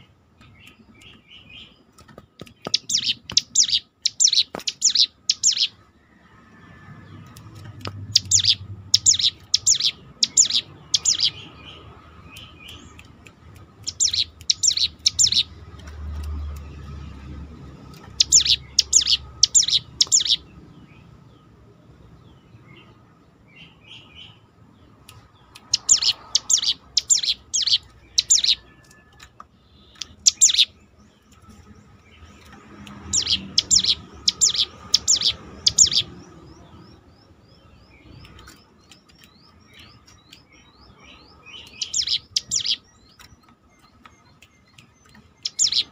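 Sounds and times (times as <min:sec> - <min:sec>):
bird singing sharp repeated notes: 0:00.0 - 0:45.9.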